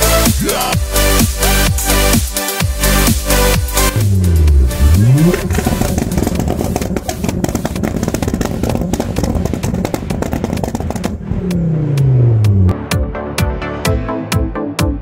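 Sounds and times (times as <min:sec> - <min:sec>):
car engine revving hard: 0:03.4 - 0:13.2.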